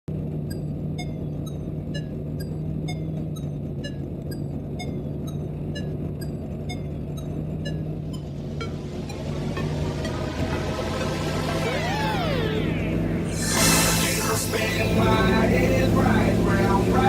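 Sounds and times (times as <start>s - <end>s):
car engine running: 0.0s - 17.0s
light ticking: 0.4s - 11.0s.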